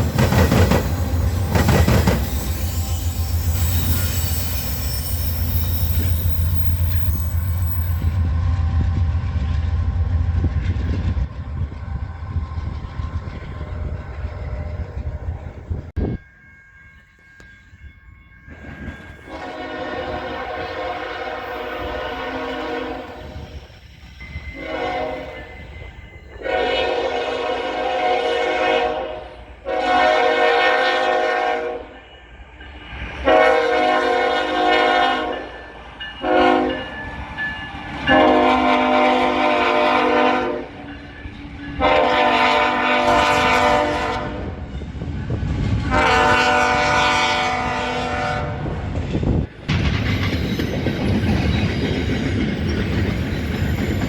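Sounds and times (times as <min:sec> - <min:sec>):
locomotive air horn blasts: 0:19.2 - 0:23.4, 0:24.5 - 0:25.4, 0:26.4 - 0:32.0, 0:33.2 - 0:35.5, 0:36.2 - 0:36.8, 0:38.1 - 0:40.8, 0:41.8 - 0:44.6, 0:45.8 - 0:48.9.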